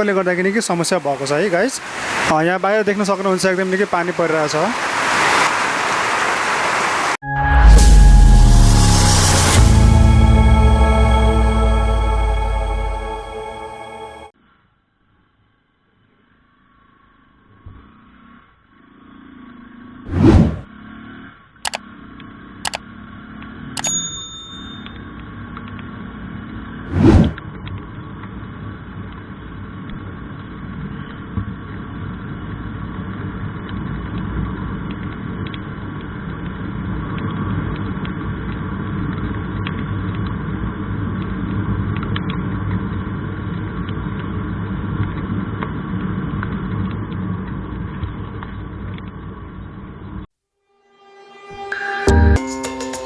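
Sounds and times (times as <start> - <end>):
vehicle rumble: 16.6 - 23.8, 24.9 - 50.3.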